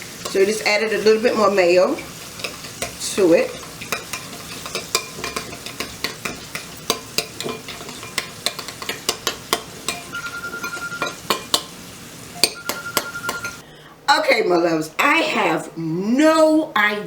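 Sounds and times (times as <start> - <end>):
spoon scraping a bowl: 2.0 - 11.6
brief steady tone: 10.1 - 11.2, 12.4 - 13.6.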